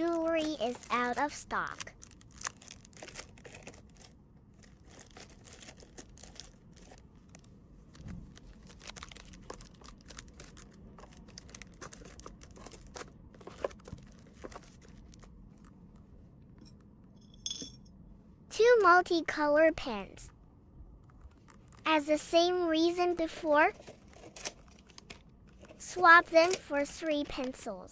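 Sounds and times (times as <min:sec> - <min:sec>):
plastic packaging crinkling: 0:00.0 - 0:15.4, 0:21.3 - 0:21.9, 0:23.7 - 0:27.5.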